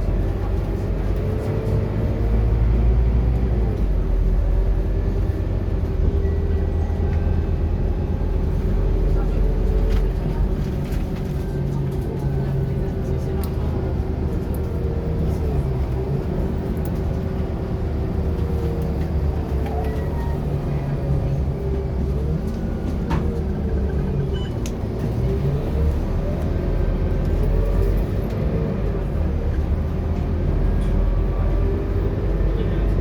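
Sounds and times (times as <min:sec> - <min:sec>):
bus diesel engine rumbling: 0:00.0 - 0:33.0.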